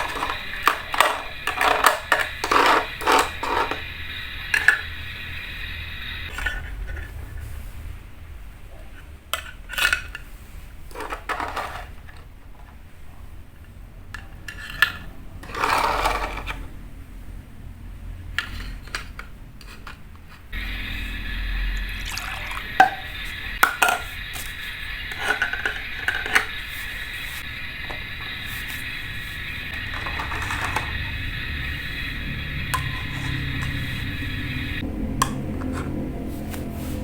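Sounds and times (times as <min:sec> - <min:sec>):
steady hiss: 0:00.0 - 0:09.1, 0:20.5 - 0:34.9.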